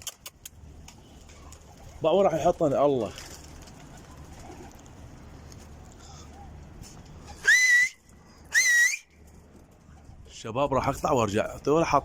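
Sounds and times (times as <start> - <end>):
loud sharp whistles: 7.4 - 9.1.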